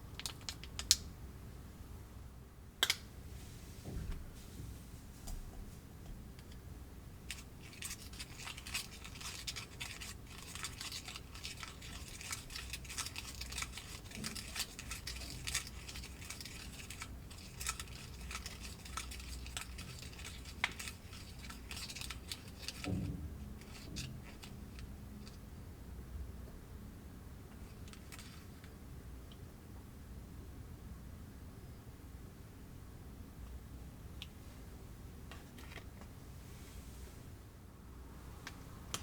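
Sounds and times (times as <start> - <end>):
soft thump: 3.8 - 5.7
plastic packaging crinkling: 7.3 - 23.0.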